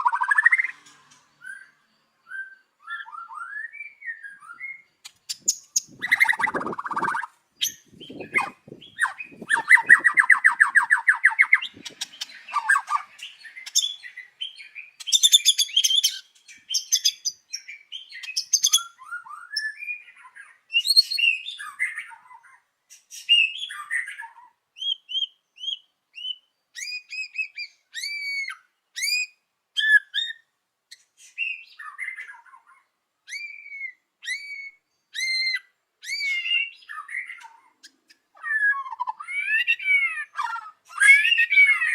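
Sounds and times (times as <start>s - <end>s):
bird whistling notes: 0.0s - 14.2s.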